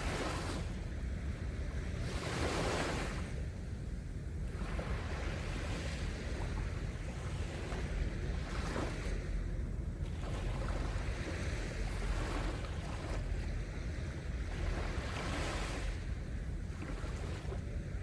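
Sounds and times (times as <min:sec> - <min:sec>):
sea waves washing onto sand: 0:00.0 - 0:00.8, 0:01.7 - 0:03.4
wind rumbling on microphone: 0:00.0 - 0:18.0.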